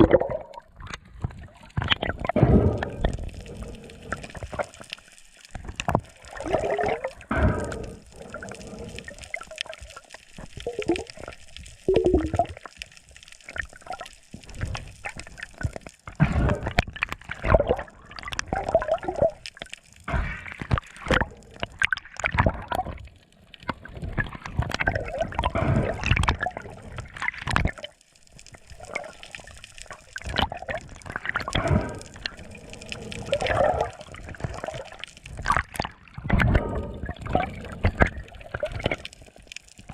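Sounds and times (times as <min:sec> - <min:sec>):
seawater gurgling and sloshing: 0:00.0 - 0:12.8, 0:13.4 - 0:28.0, 0:28.6 - 0:39.9
water drips: 0:00.0 - 0:39.9.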